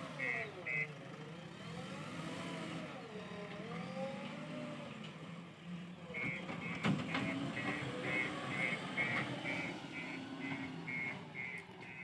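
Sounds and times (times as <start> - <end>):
diesel engine under load: 0.0 - 12.0
reversing beeper: 6.2 - 12.0.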